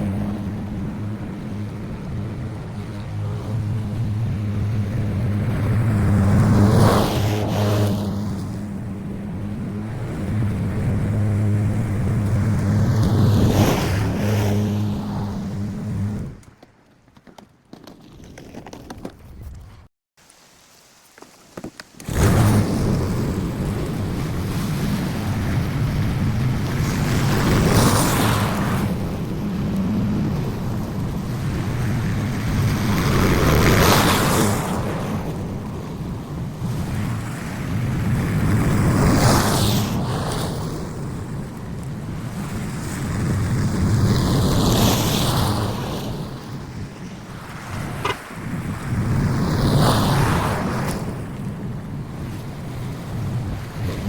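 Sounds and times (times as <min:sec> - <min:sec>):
lawn mower engine running: 0:00.0 - 0:16.4, 0:21.7 - 0:46.2.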